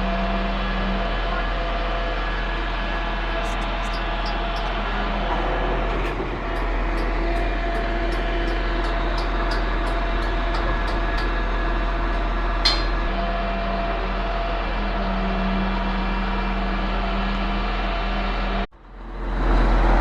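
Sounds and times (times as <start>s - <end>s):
concrete pump drone: 0.0s - 20.0s.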